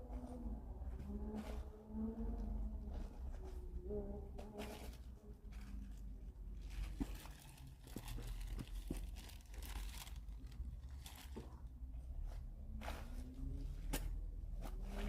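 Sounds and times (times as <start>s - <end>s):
hands rummaging through packaging: 4.4s - 11.7s.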